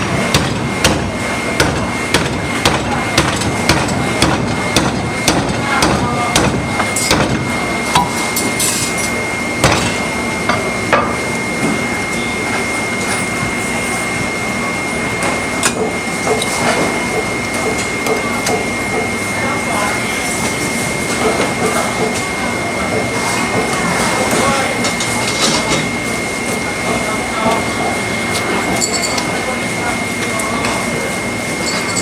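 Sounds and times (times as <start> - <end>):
meat cleaver chopping on a block: 0.0 - 8.2.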